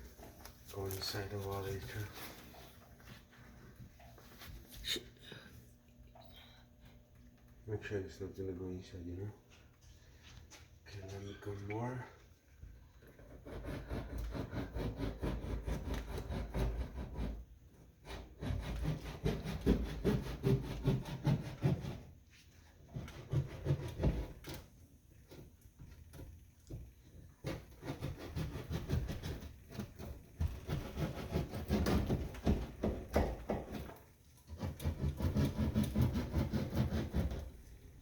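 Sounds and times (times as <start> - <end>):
hand tool rasping into wall: 13.2 - 22.1, 22.9 - 24.6, 27.4 - 37.7.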